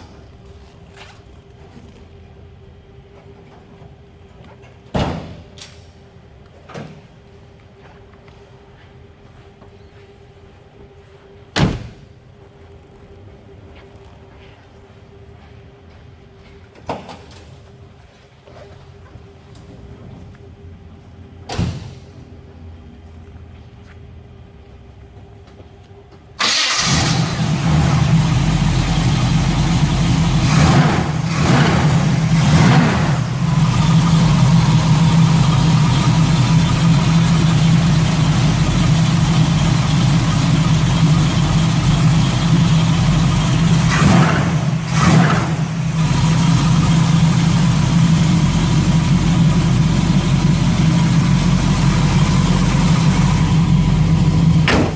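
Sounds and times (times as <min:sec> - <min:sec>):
car engine starting and idling: 0:26.3 - 0:54.9
engine revving: 0:26.4 - 0:34.8, 0:43.7 - 0:46.9.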